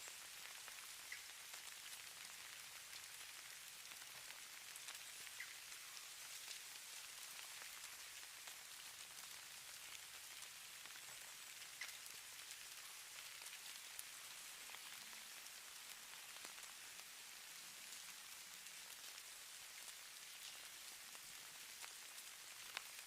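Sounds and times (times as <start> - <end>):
soft ticks: 11.7 - 12.2, 22.7 - 23.0.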